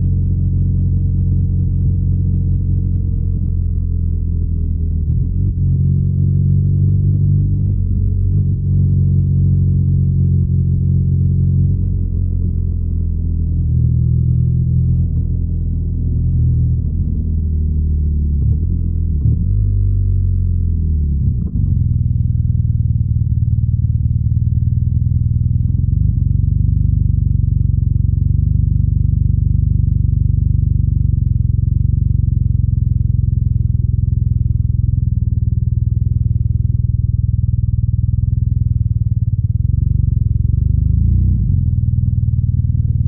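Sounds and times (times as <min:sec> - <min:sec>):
motorcycle engine running: 0:21.3 - 0:43.0.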